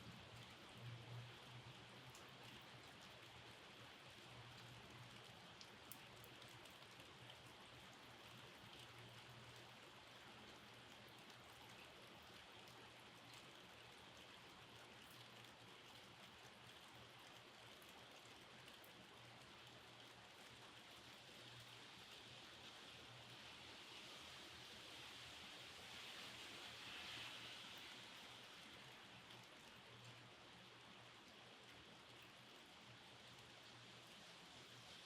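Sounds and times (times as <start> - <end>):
faint steady rain: 0.0 - 35.0
raindrops ticking: 0.2 - 22.2.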